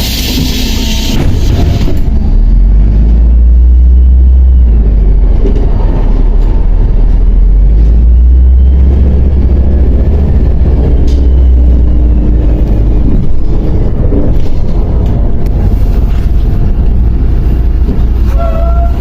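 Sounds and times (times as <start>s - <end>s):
bus engine rumbling: 0.0s - 19.0s.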